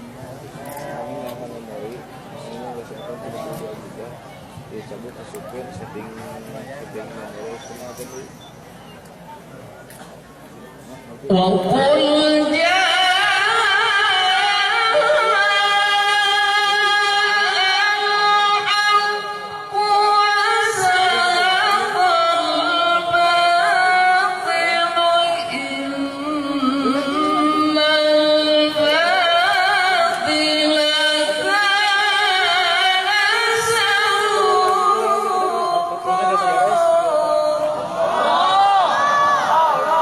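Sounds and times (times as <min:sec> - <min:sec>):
person reciting in melodic sung style: 0:11.3 - 0:37.9.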